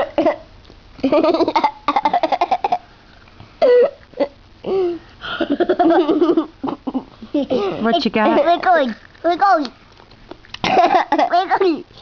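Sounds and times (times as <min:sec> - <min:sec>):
child giggling and babbling: 0:05.6 - 0:08.9, 0:10.8 - 0:11.9.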